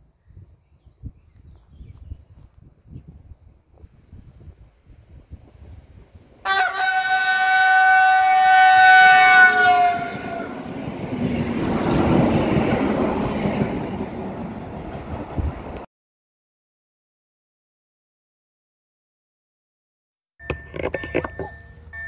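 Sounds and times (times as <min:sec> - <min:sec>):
train wheels rumbling on rails: 0:04.7 - 0:15.9
train horn: 0:06.4 - 0:10.8.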